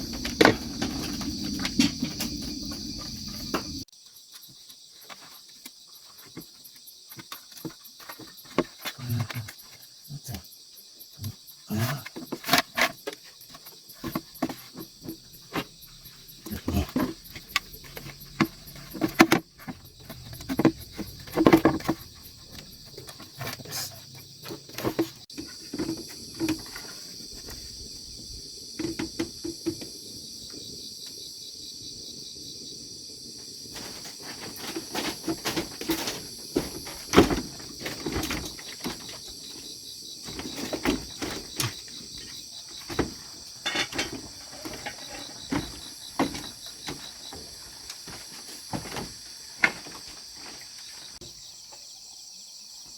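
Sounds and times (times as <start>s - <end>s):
knocks and clatters: 0.0s - 3.9s, 12.0s - 27.6s, 33.8s - 50.2s
insects chirping: 0.0s - 52.9s.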